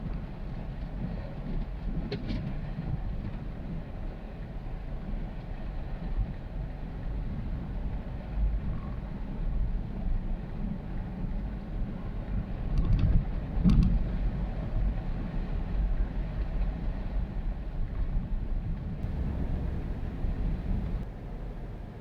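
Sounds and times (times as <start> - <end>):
truck engine and tyres rumbling: 19.0 - 22.0.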